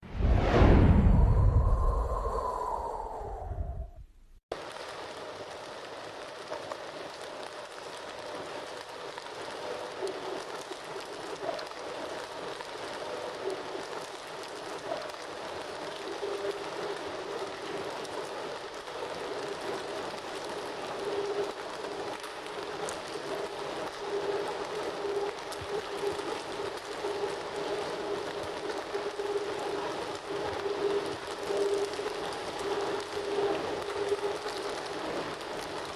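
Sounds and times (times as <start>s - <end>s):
whooshing intro effect: 0.0s - 4.0s
campfire crackling and hissing: 0.1s - 3.9s, 4.5s - 35.9s.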